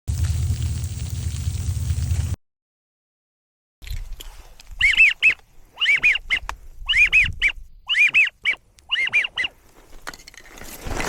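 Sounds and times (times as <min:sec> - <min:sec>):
whistled duck calls: 0:04.8 - 0:09.6.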